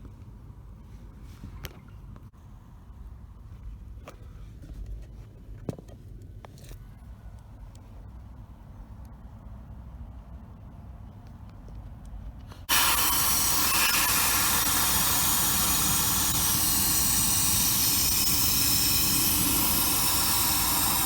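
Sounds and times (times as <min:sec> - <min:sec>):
pressurised jet hissing: 0:12.7 - 0:21.0.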